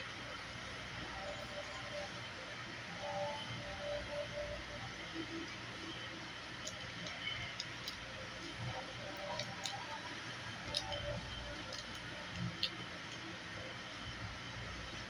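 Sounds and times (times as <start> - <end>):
faint scattered clicks: 6.5 - 13.4.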